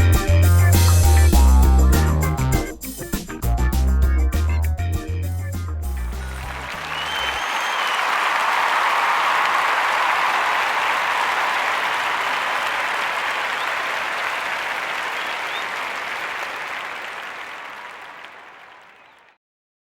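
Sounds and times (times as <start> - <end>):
crowd applause: 6.1 - 19.3.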